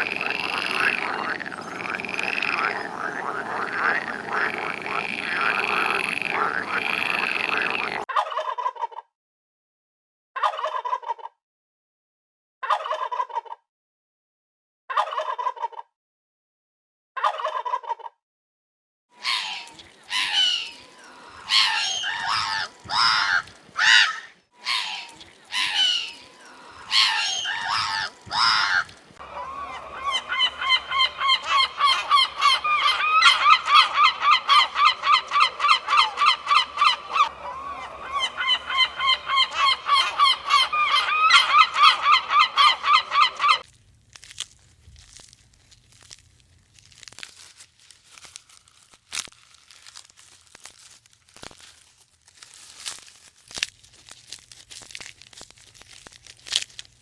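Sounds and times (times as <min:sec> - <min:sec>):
animal honking calls: 0:00.0 - 0:08.0, 0:26.9 - 0:43.6
rustling: 0:43.7 - 0:57.0.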